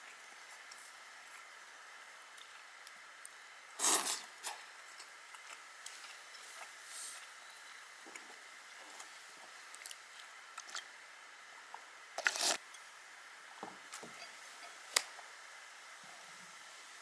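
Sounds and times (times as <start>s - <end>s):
faint steady hiss: 0.0s - 17.0s
person slurping noodles: 3.8s - 4.3s, 12.2s - 12.6s.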